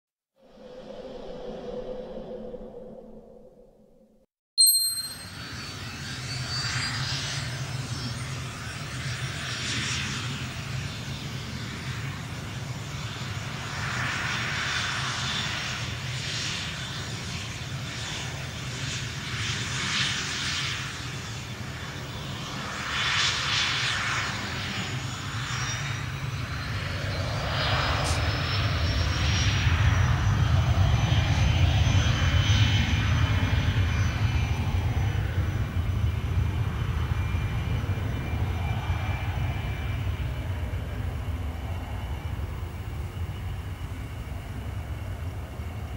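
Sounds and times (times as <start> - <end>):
jet engines whining: 5.3 - 45.9.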